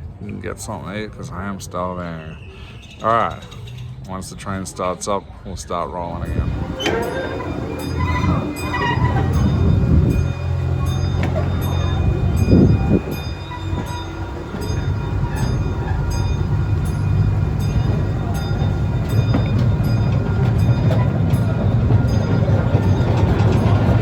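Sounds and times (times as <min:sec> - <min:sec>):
train engine hum: 0:00.0 - 0:24.0
train wheel clicks: 0:06.3 - 0:24.0.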